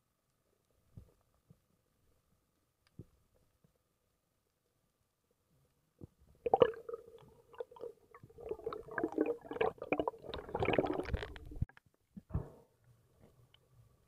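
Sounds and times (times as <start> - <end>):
underwater gurgling: 6.4 - 11.7.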